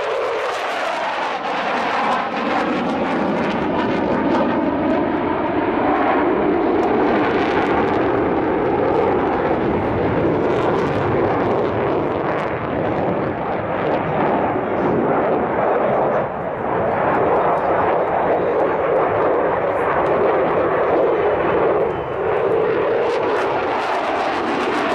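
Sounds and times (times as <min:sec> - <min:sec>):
aircraft engine rushing: 0:00.0 - 0:24.9.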